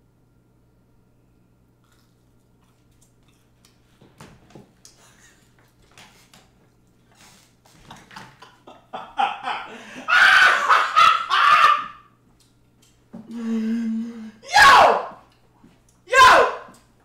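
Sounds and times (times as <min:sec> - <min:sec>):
chewing and crunching churro: 0:01.8 - 0:03.9.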